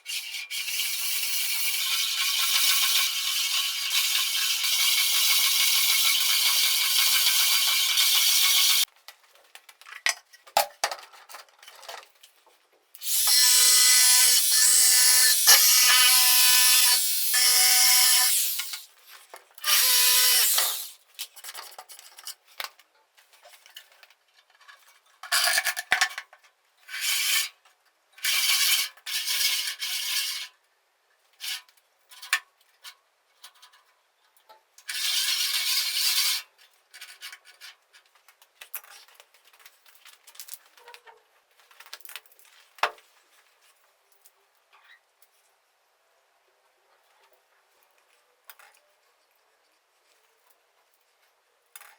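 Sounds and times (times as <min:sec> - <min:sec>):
band saw cutting wood: 0:00.5 - 0:08.8, 0:13.0 - 0:18.9, 0:19.7 - 0:21.0.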